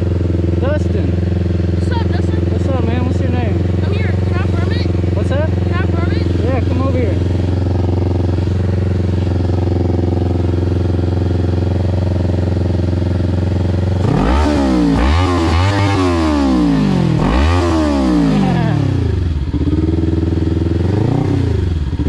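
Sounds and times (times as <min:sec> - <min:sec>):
motorcycle engine idling and revving: 0:00.0 - 0:22.0.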